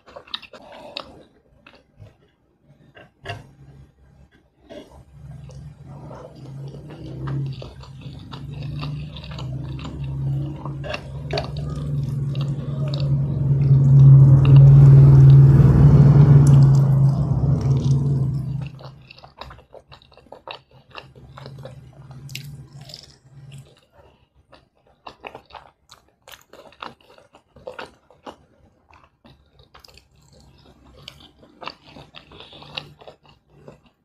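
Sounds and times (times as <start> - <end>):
mouth-closed chewing: 0.0 - 3.9, 4.6 - 34.0
loud steady low hum: 5.4 - 19.1.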